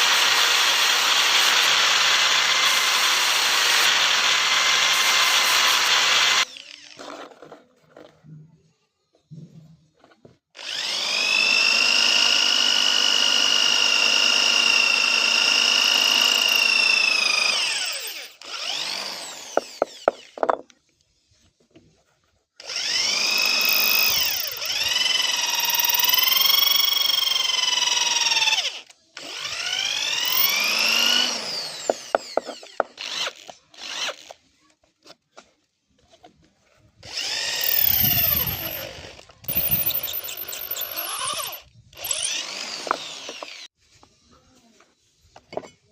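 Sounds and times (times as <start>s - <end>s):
power tool motor whine: 10.6s - 20.5s, 22.6s - 34.3s, 37.0s - 43.7s.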